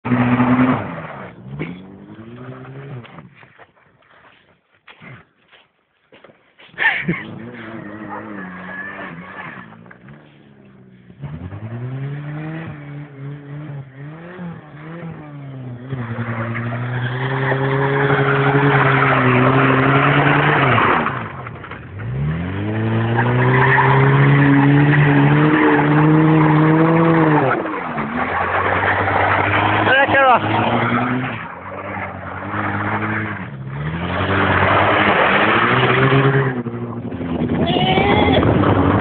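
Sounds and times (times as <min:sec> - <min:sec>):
car engine revving hard: 0:00.0 - 0:03.1, 0:11.0 - 0:37.7
tyres sliding on loose ground: 0:00.1 - 0:10.8, 0:15.9 - 0:39.0.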